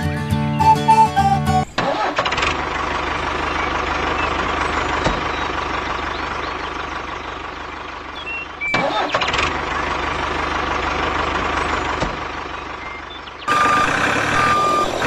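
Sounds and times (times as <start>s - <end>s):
music: 0.0s - 1.7s
engine idling: 0.0s - 15.0s.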